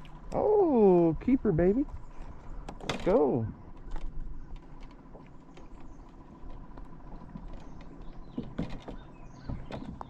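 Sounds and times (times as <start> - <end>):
light clicks and knocks: 2.6 - 10.0.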